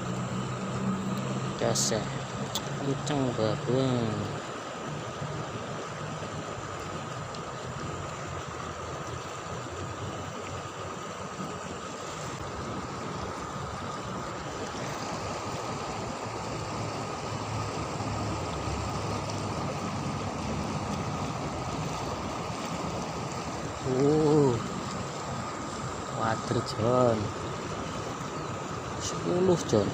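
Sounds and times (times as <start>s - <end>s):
river water flowing: 0.0s - 29.9s
person speaking: 1.6s - 4.4s, 23.8s - 24.8s, 26.0s - 27.4s, 29.0s - 29.9s.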